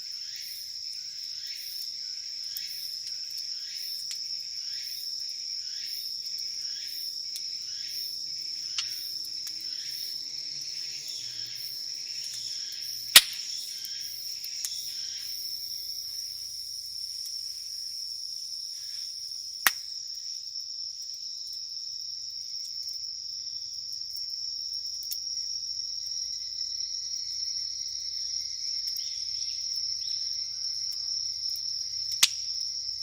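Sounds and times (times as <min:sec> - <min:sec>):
insects trilling: 0:00.0 - 0:33.0
campfire popping: 0:12.3 - 0:13.7.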